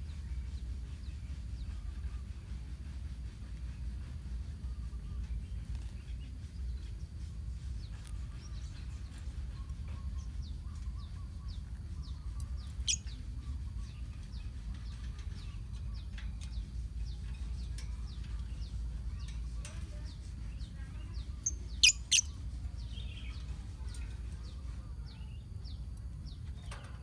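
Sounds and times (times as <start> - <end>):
steady low rumble: 0.0 - 27.0
lovebirds chirping: 21.3 - 22.4.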